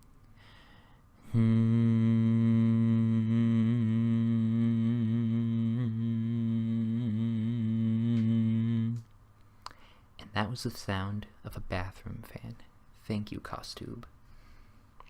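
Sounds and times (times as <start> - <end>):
man humming low drone: 1.2 - 9.0.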